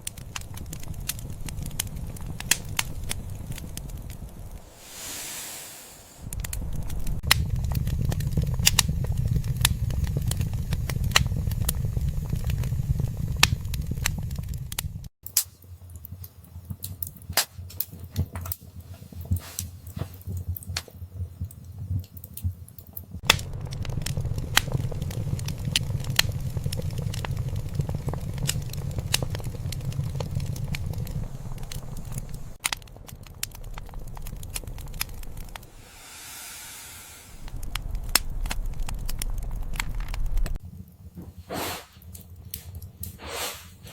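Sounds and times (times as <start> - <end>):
low rumble: 0.0 - 15.1, 23.2 - 40.8
wood fire crackling and popping: 0.0 - 35.8, 37.4 - 43.2.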